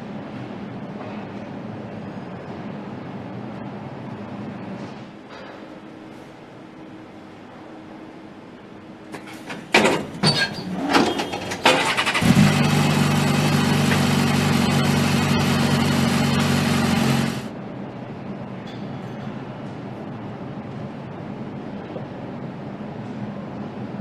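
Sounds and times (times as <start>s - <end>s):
motorcycle engine starting and idling: 10.9s - 17.5s.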